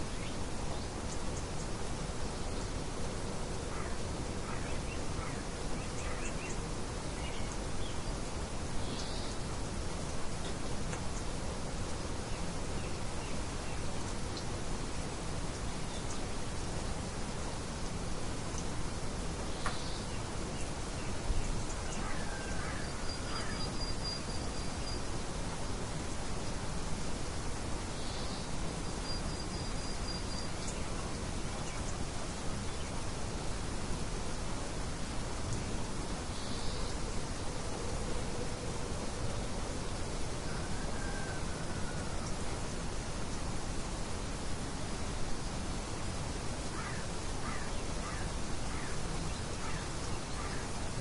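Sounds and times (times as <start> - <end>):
faint birds chirping: 0.0 - 51.0
light wind hiss: 0.0 - 51.0
faint bird chirps: 3.7 - 8.2, 19.5 - 25.2, 27.9 - 32.0, 36.3 - 37.1.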